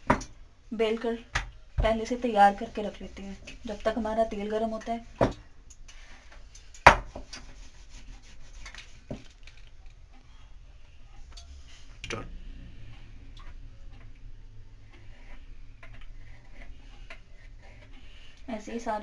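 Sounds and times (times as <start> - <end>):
kitchen tools tapping and scraping: 0.0 - 7.7.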